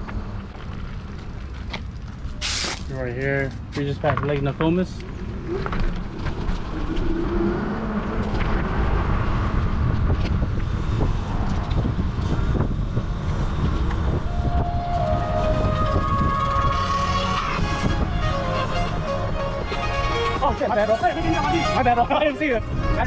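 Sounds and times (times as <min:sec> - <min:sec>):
wind buffeting microphone: 0:05.0 - 0:23.0
held musical tones: 0:14.1 - 0:23.0.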